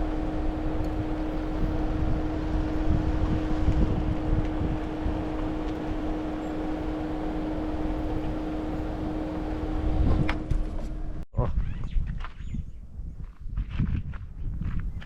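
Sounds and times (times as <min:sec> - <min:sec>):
car engine and road rumble: 0:00.0 - 0:11.3.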